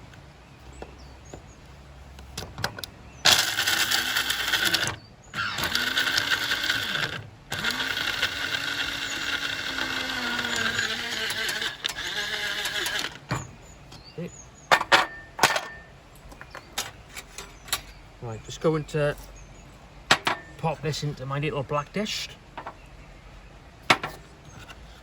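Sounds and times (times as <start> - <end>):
coffee grinder motor grinding nuts: 3.2 - 13.3.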